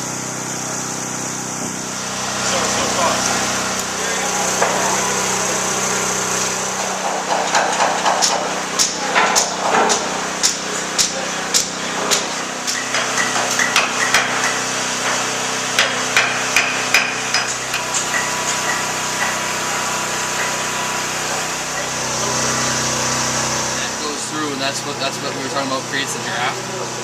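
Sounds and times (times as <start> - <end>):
machine hum: 0.0 - 27.0
hammer striking metal: 6.9 - 22.7.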